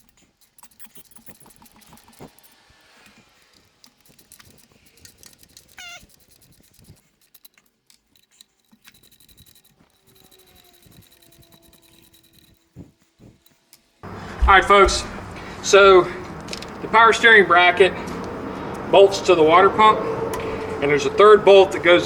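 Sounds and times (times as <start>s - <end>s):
tools clicking and clinking on engine: 0.0s - 17.0s
short high squeak: 5.6s - 7.0s, 9.0s - 13.5s.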